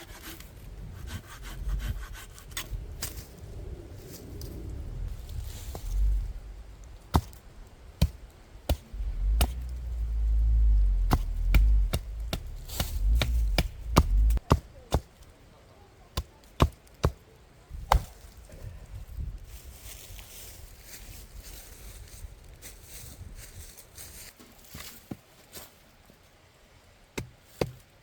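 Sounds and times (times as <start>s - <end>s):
low rumble: 0.5s - 14.5s
firewood being chopped: 6.9s - 10.2s, 11.0s - 15.3s, 16.2s - 17.2s, 17.8s - 18.4s.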